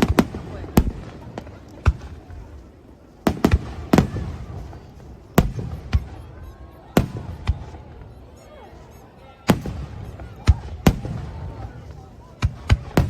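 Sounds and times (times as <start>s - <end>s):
fireworks booming with echo: 0.0s - 13.0s.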